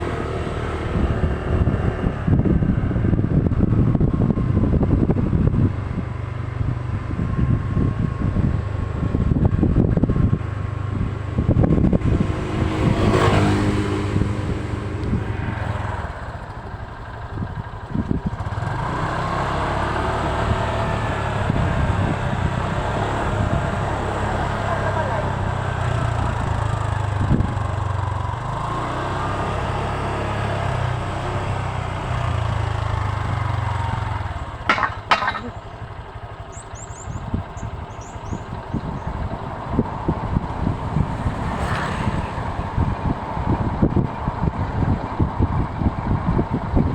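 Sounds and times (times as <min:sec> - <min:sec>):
wind buffeting microphone: 0:00.0 - 0:24.1, 0:37.0 - 0:46.9
motorcycle engine running: 0:00.0 - 0:29.8, 0:30.8 - 0:41.6.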